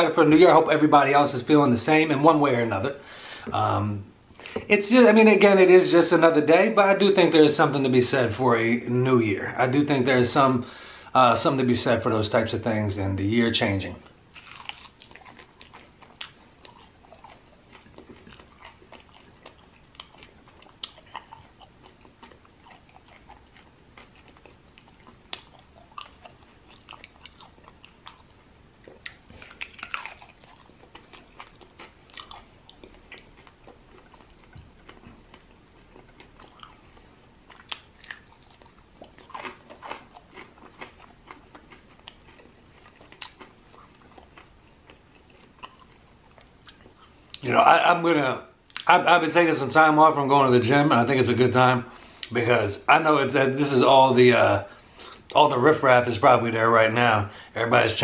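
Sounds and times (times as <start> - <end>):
person chewing and crunching: 14.0 - 47.5.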